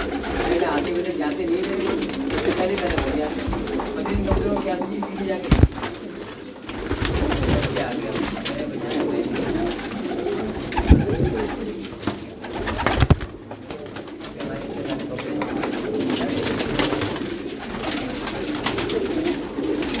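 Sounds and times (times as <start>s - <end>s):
pigeons cooing: 0.0s - 20.0s
sharp knocks: 3.4s - 6.0s.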